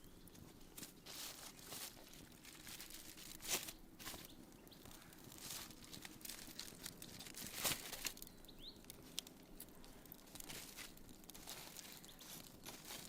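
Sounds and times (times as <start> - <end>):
crackling and rustling: 0.0 - 13.0
bird chirp: 4.1 - 5.1, 8.2 - 8.9.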